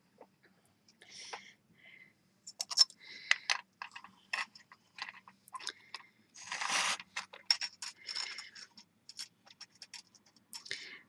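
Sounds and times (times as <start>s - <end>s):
small metal pieces clicking and scraping: 2.5s - 10.8s.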